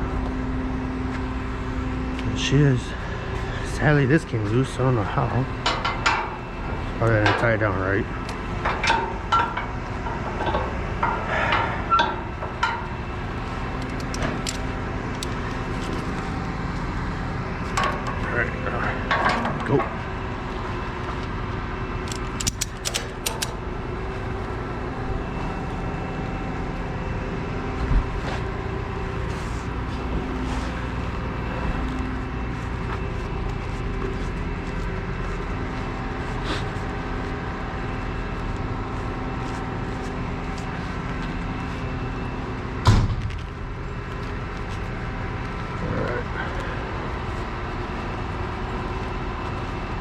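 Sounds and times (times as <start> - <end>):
engine running: 0.0 - 50.0
sharp metallic clicks: 13.8 - 16.1, 22.0 - 23.6.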